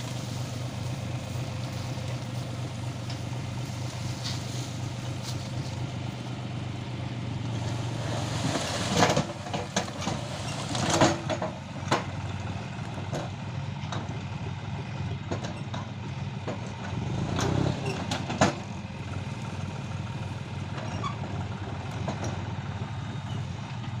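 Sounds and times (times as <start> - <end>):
diesel engine running: 0.0 - 24.0
sharp clanks and knocks: 7.5 - 12.4, 15.3 - 18.7.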